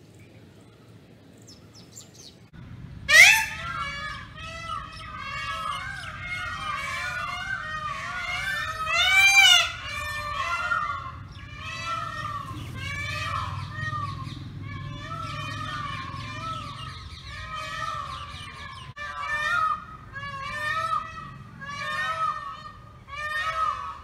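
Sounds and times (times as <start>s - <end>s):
birds calling and chattering: 0.0s - 24.0s
loud rising and falling bird call: 3.0s - 24.0s.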